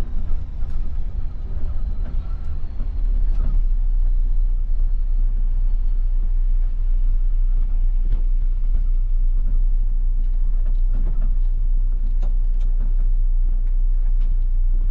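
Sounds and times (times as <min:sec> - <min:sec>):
faint cabin rattles and clicks: 0:00.0 - 0:04.7, 0:07.6 - 0:14.9
bus engine and road rumble: 0:00.0 - 0:14.9.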